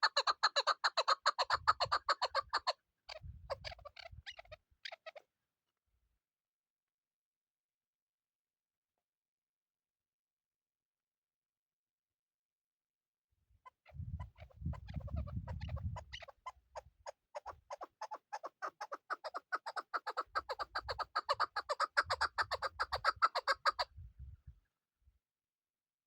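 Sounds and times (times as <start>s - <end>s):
partridge clucking calls: 0.0s - 5.3s, 13.7s - 23.9s.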